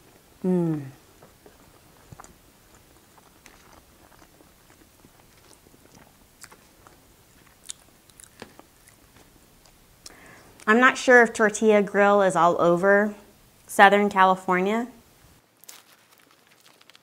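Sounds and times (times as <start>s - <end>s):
chewing and mouth sounds: 0.8s - 10.7s.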